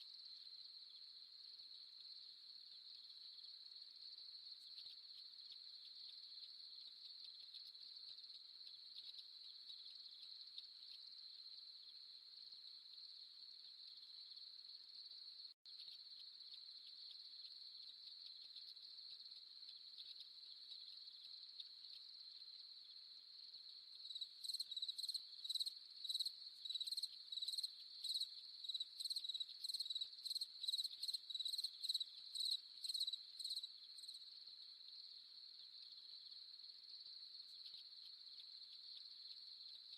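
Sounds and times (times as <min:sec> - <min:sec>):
insect chirping in short pulses: 0:15.7 - 0:36.4
crickets trilling: 0:15.7 - 0:39.9.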